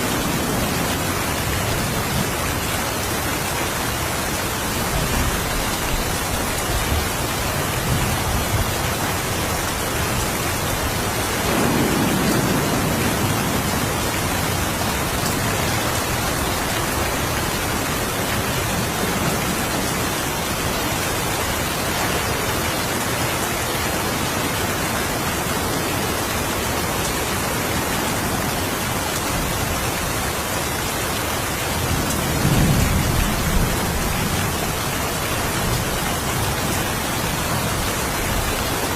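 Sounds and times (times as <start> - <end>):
steady rain: 0.0 - 38.9
thunder rumbling: 4.9 - 21.7, 31.8 - 38.5.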